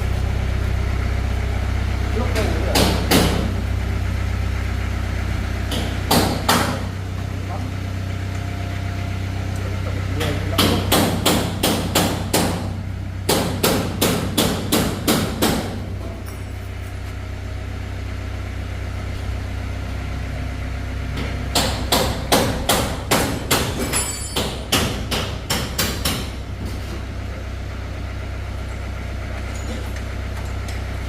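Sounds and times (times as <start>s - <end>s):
steady low hum: 0.0s - 31.0s
hammer striking car bodywork: 2.3s - 3.6s, 5.6s - 7.0s, 10.2s - 16.2s, 21.2s - 26.8s.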